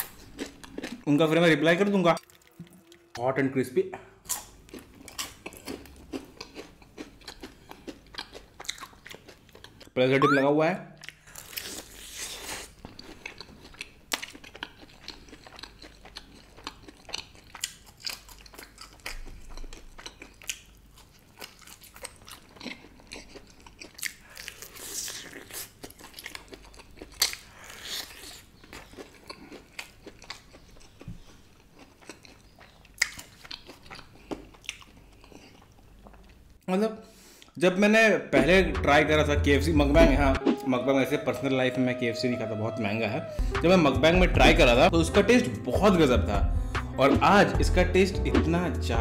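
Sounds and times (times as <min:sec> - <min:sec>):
chewing: 0:00.0 - 0:01.1, 0:02.2 - 0:03.2, 0:04.2 - 0:10.0, 0:11.0 - 0:36.6
crunchy fried chicken bites: 0:11.1 - 0:35.4.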